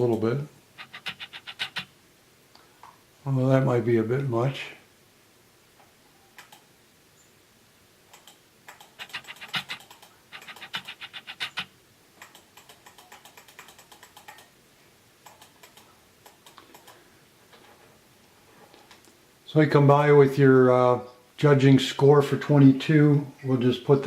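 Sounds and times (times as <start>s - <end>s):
computer keyboard typing: 0.8s - 1.9s, 8.1s - 14.5s, 15.2s - 17.0s.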